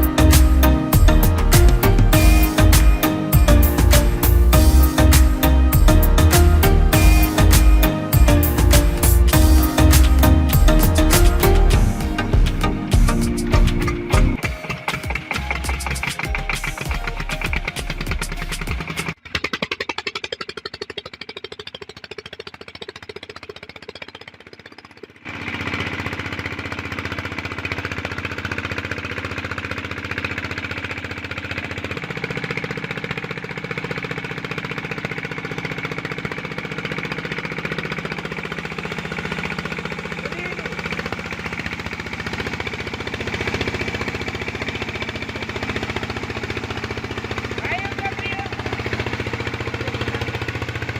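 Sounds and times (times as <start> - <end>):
diesel engine chugging: 0.0 - 50.9.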